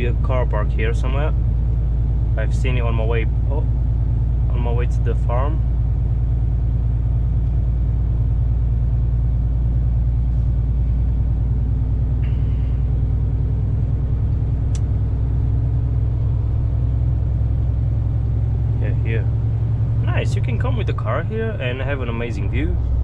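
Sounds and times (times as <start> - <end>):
diesel truck engine drone: 0.0 - 23.0
sharp click: 14.7 - 14.9.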